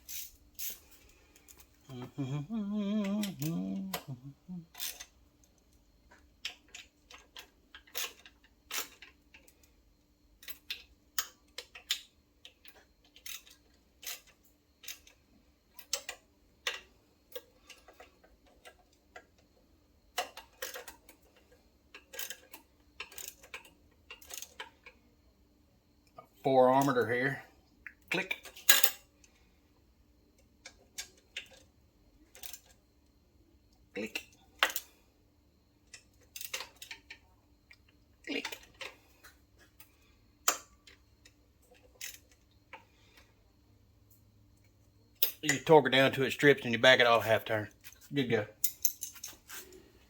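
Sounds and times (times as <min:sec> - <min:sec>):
metal clicks of hand tools: 0:03.0 - 0:05.1, 0:22.0 - 0:24.7, 0:34.1 - 0:34.9.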